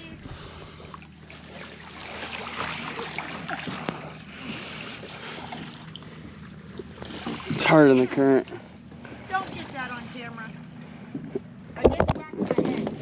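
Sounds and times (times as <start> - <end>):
water splashing off paddle: 0.2 - 6.0, 6.8 - 8.2.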